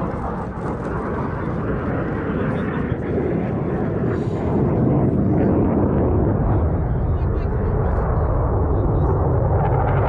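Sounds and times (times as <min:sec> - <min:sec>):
military aircraft flying overhead: 0:00.0 - 0:10.0.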